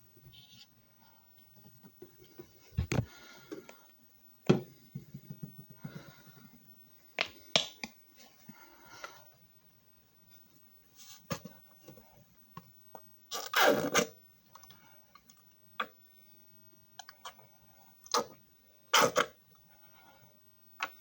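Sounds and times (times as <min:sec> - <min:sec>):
faint rustling and shuffling: 0:10.2 - 0:12.5.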